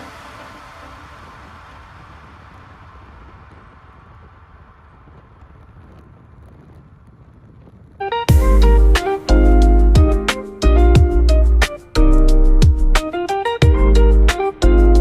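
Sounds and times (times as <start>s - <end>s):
background music: 0.0s - 1.8s, 8.2s - 15.0s
outdoor ambience rumble and hiss: 0.0s - 10.0s.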